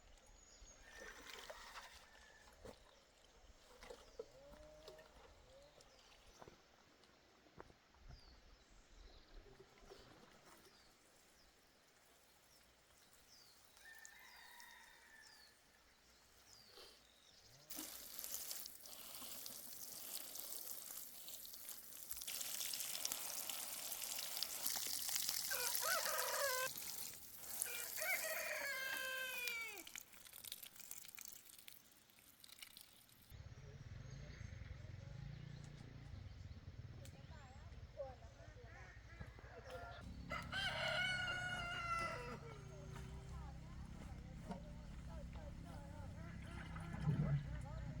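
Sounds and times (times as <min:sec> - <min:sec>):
rooster crowing: 0:25.5 - 0:26.7, 0:27.6 - 0:29.9, 0:39.2 - 0:43.7.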